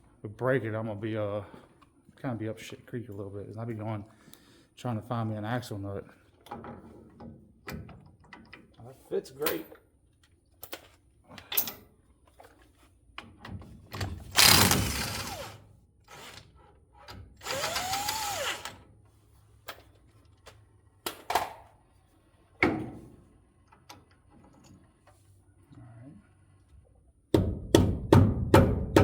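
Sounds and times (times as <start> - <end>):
impact wrench running: 14.3 - 16.3, 17.4 - 18.7.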